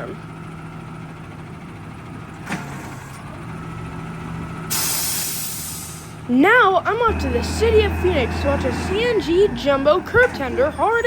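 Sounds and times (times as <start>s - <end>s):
garbage truck engine humming: 0.0s - 11.0s
air brakes hissing: 4.7s - 6.2s.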